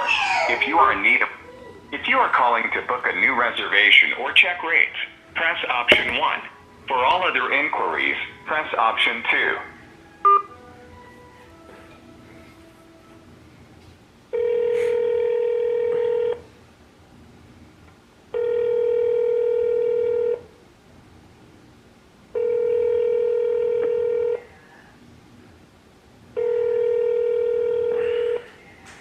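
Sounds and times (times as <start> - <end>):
telephone ringback tone: 10.2 - 10.6, 14.3 - 16.4, 18.4 - 20.4, 22.4 - 24.4, 26.4 - 28.4.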